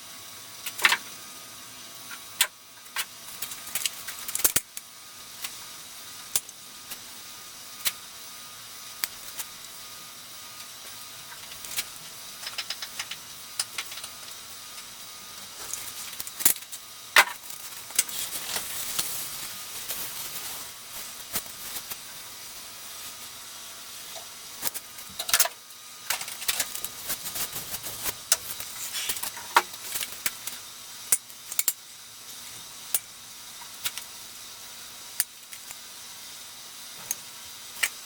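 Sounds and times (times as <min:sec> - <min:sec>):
steady hiss: 0:08.6 - 0:37.1.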